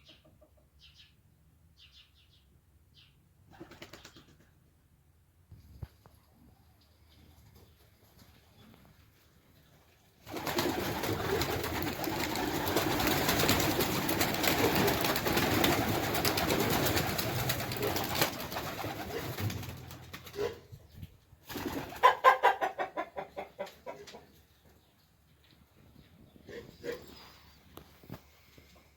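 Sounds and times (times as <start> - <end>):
pigeons cooing: 10.3 - 19.6.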